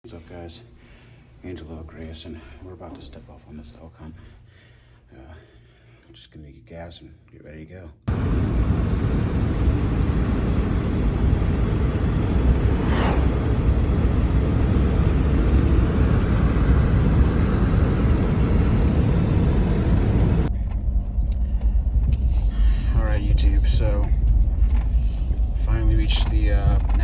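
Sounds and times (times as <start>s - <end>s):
road and wind rumble: 8.1s - 27.0s
brief hiss: 12.4s - 14.1s.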